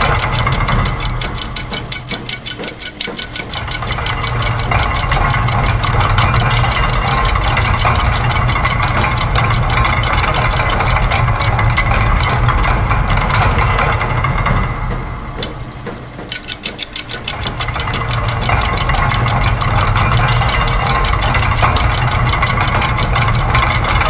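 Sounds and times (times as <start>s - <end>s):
rapid mechanical clicking: 0.0s - 24.0s
steady low rumble: 3.6s - 15.9s, 17.3s - 24.0s.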